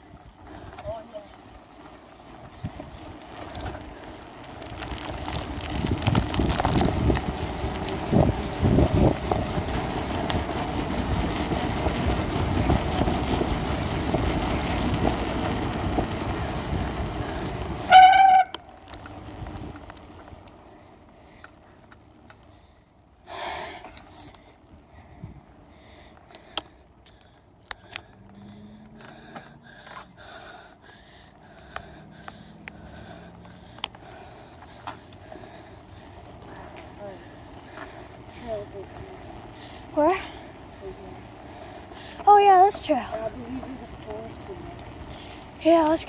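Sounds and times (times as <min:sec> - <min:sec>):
wind and rolling noise: 0:00.0 - 0:46.0
bicycle brake squeal: 0:17.9 - 0:18.6
small clicks: 0:18.5 - 0:20.6, 0:26.1 - 0:30.2.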